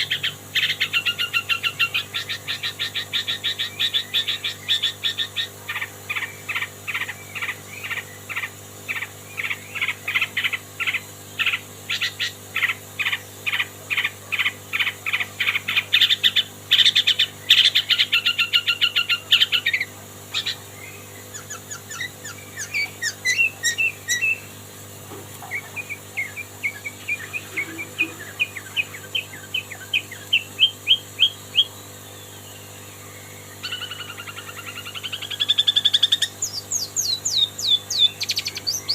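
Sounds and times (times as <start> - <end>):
bright bird trill: 0.0 - 24.5, 25.5 - 38.9
rising bird notes: 25.4 - 31.8
bird singing sharp chirps: 25.4 - 38.9.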